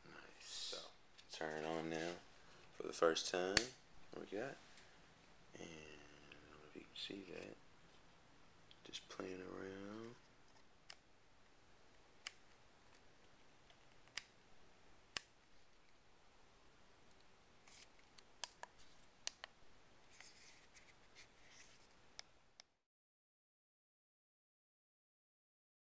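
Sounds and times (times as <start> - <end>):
soft handling rustle: 1.1 - 3.0, 20.0 - 22.0.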